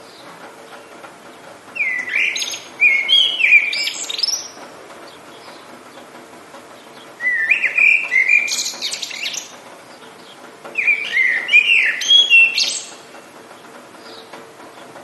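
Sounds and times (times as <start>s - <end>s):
songbird whistling and trilling: 1.8s - 4.6s, 7.2s - 9.5s, 10.8s - 13.0s.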